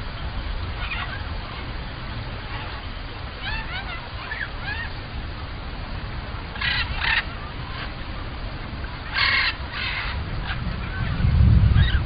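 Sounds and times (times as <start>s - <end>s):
small birds chirping: 0.0s - 12.0s
harsh raspy bird calls: 0.5s - 5.1s, 6.4s - 8.1s, 8.8s - 12.0s
low rumble: 10.0s - 12.0s.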